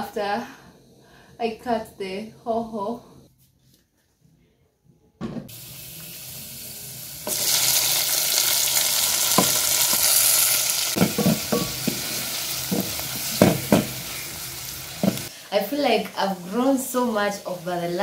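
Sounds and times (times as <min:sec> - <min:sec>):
vegetables sizzling in oil: 0:05.5 - 0:18.0
spoon knocking against pan: 0:11.0 - 0:14.0, 0:15.0 - 0:15.3.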